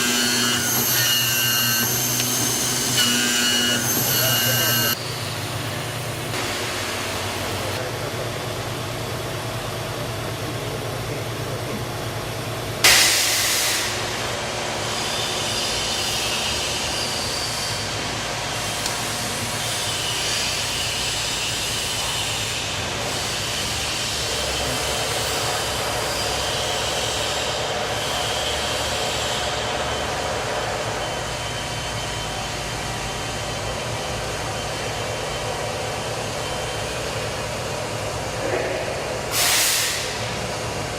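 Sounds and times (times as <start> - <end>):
key milling machine humming: 0.0 - 6.3
high wavering whine: 0.0 - 6.4
sudden loud hiss: 39.3 - 40.4.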